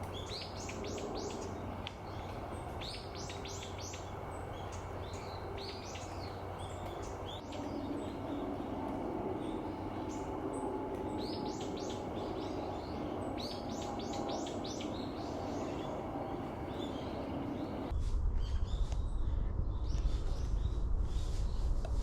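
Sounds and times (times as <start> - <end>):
small birds calling: 0.0 - 17.9
steady background hum: 0.0 - 22.0
strong low rumble: 7.3 - 22.0.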